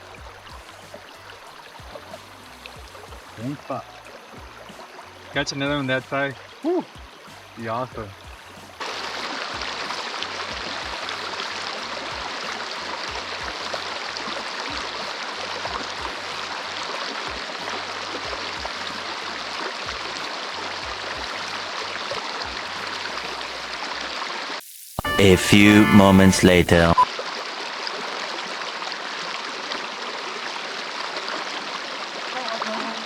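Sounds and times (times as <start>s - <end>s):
rushing water hiss: 24.6s - 25.0s.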